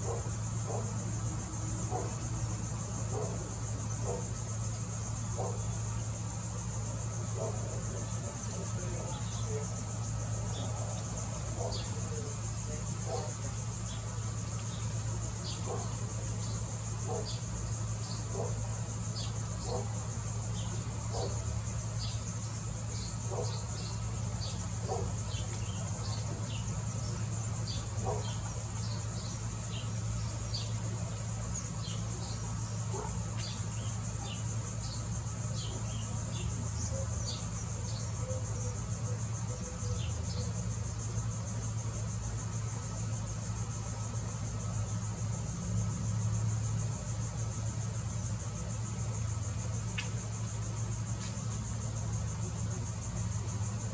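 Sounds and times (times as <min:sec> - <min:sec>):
insect chorus drone: 0:00.0 - 0:53.9
short insect chirps: 0:13.6 - 0:53.9.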